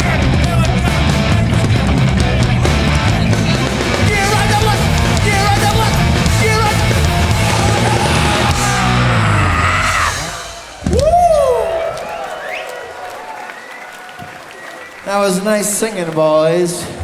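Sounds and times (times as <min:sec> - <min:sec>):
voices singing: 0:00.0 - 0:10.8
punk band playing live: 0:00.0 - 0:11.2.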